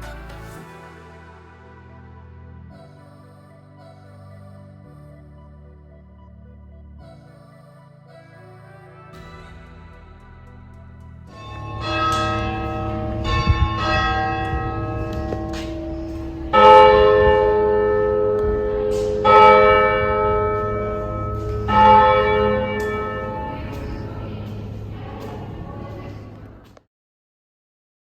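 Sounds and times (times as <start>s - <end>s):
church bells ringing: 10.8s - 26.4s.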